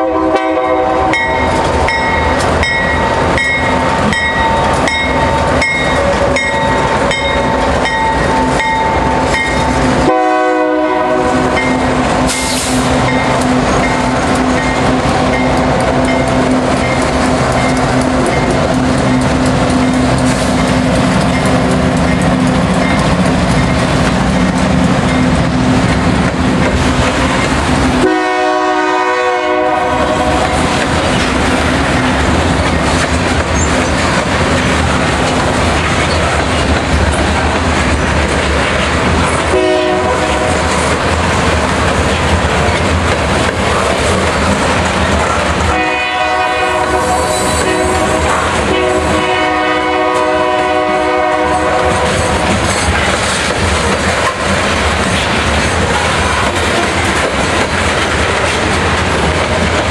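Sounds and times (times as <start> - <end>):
train horn: 0.0 - 1.5, 10.0 - 12.8, 28.0 - 30.6, 39.5 - 40.6, 45.6 - 52.5
diesel locomotives running: 0.0 - 59.9.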